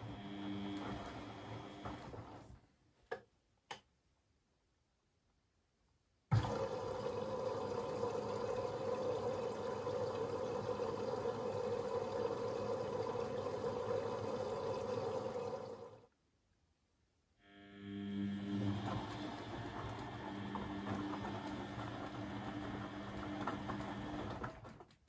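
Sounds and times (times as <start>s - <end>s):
water rushing into washing machine: 0.0s - 2.6s, 6.3s - 16.1s, 18.1s - 25.0s.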